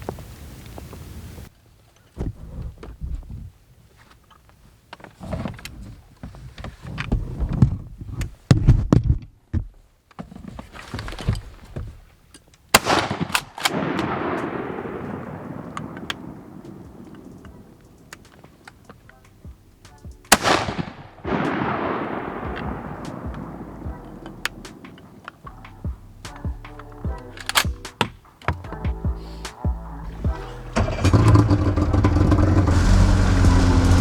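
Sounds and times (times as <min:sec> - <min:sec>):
shotgun blasts: 0:12.7 - 0:18.2, 0:20.3 - 0:24.0.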